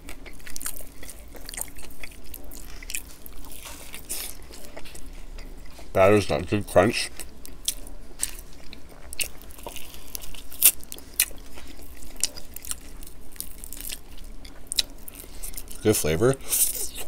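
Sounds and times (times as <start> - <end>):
crunchy chewing of fried chicken: 0.0 - 17.0.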